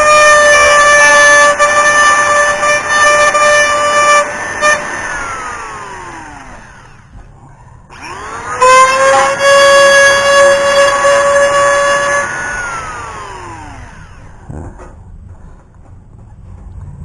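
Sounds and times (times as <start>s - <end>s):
rotary tool motor whining: 0.0s - 7.3s, 7.9s - 14.8s.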